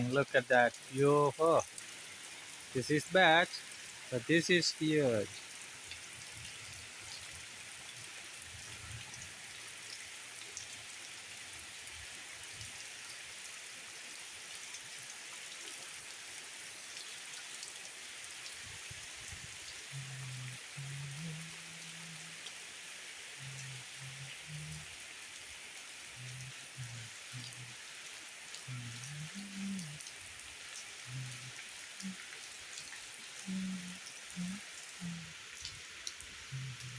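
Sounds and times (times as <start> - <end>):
steady rain: 0.0 - 36.9
faint low-pitched tones: 26.1 - 27.8, 36.3 - 36.9.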